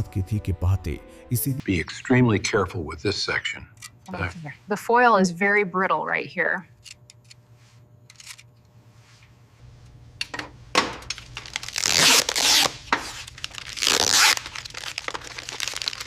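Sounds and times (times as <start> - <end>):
foil crinkling and tearing: 11.1 - 16.0.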